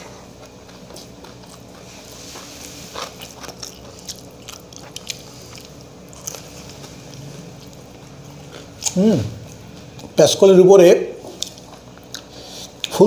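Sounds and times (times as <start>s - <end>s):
crunchy fried snack being chewed: 0.2s - 10.2s.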